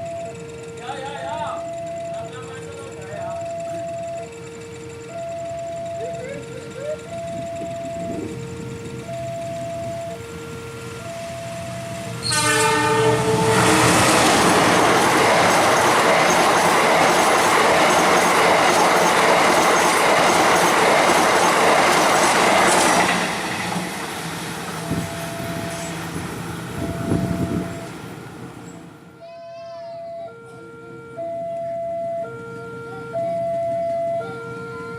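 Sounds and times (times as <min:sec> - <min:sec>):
train wheels clattering on rails: 0:12.0 - 0:28.9
train horn blast: 0:12.2 - 0:14.8.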